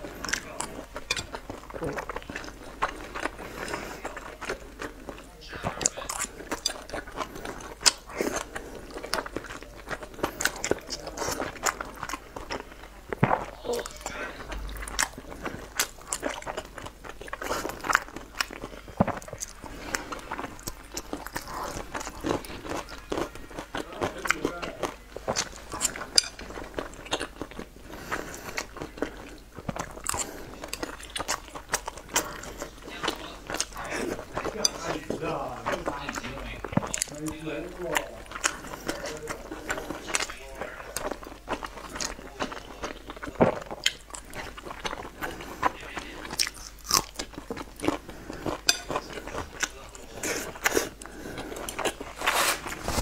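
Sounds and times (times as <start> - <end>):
wet chewing with clicks: 0.0 - 53.0
biting into a dumpling: 38.0 - 53.0.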